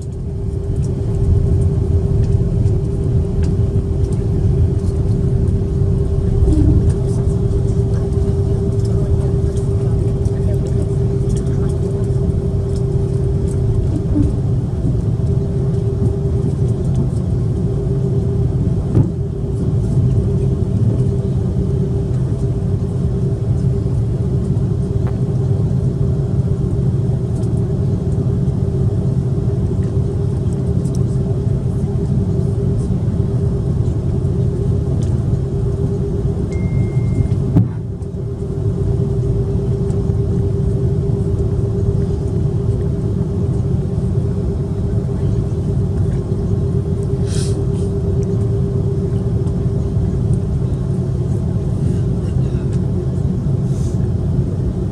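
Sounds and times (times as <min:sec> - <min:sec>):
airplane engine rumble: 0:00.0 - 0:54.9
constant hum: 0:00.0 - 0:54.9
brief high tone: 0:36.5 - 0:37.5.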